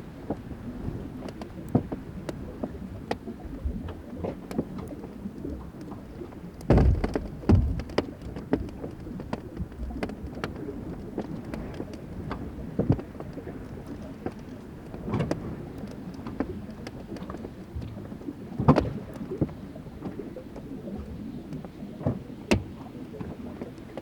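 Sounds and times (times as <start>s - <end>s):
ice dripping and cracking: 6.6s - 14.6s.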